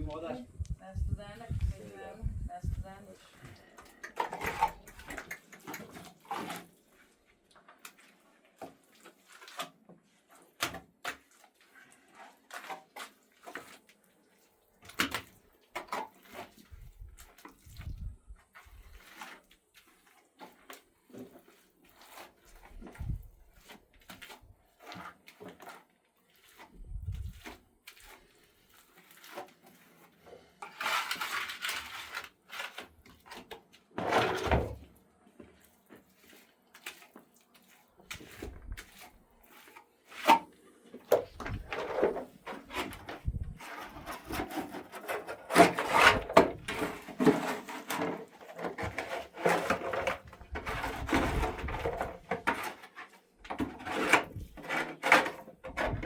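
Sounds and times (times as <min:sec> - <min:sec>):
objects knocking and scraping: 0:02.3 - 0:06.8, 0:20.4 - 0:25.8, 0:29.3 - 0:36.1, 0:38.0 - 0:56.0.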